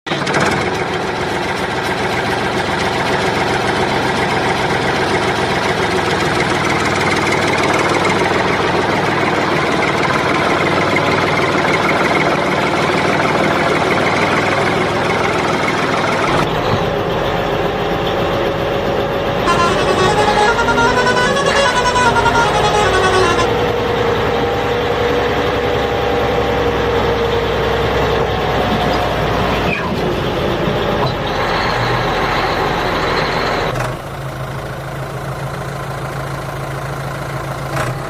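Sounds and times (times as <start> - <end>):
steady engine tone: 5.0 - 27.6.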